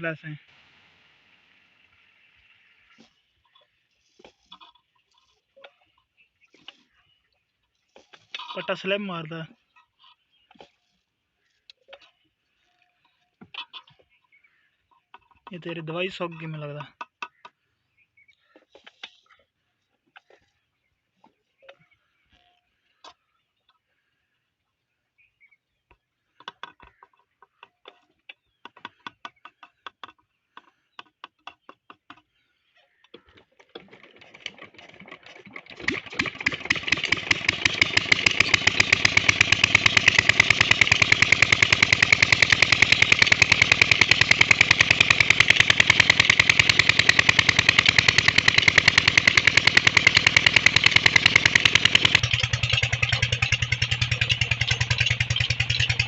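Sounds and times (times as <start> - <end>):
diesel engine starting and running: 33.8 - 56.0.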